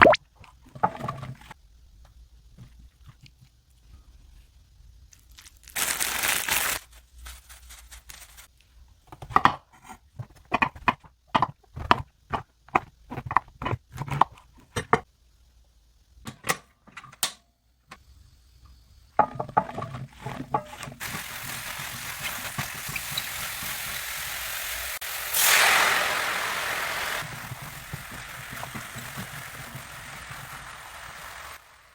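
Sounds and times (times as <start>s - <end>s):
mushrooms sizzling in a pan: 21.0s - 31.9s.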